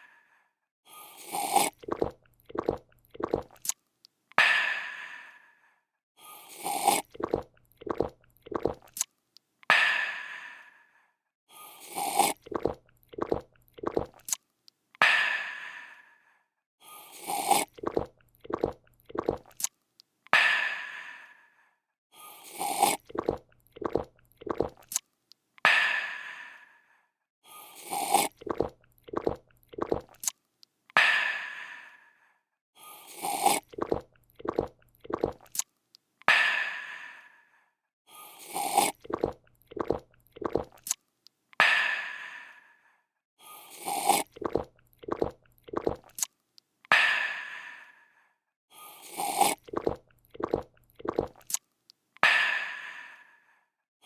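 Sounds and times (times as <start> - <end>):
person slurping: 1.0 - 3.7, 6.3 - 9.0, 11.7 - 14.4, 17.0 - 19.7, 22.2 - 25.0, 27.6 - 30.3, 32.9 - 35.6, 38.2 - 41.0, 43.6 - 46.3, 48.9 - 51.6
gulps: 1.2 - 3.6, 6.5 - 9.0, 11.8 - 14.3, 17.1 - 19.7, 22.4 - 25.0, 27.7 - 30.3, 33.1 - 35.6, 38.4 - 41.0, 43.7 - 46.3, 49.0 - 51.6.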